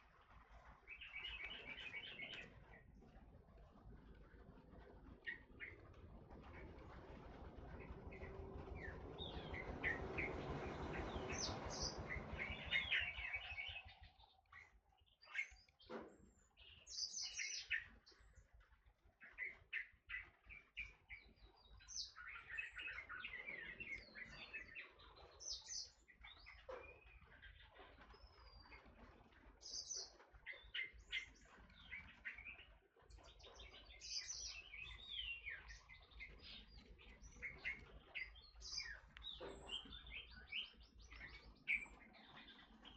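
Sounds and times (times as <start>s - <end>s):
low rumble: 3.4s - 14.4s.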